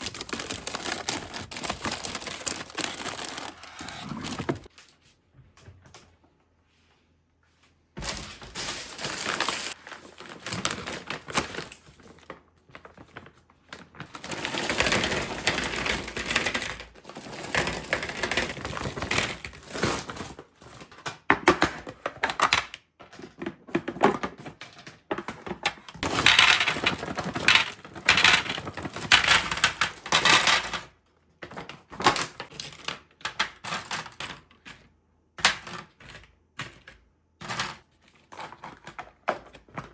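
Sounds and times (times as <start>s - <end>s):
plastic packaging crinkling: 0.0s - 4.7s, 8.0s - 20.3s.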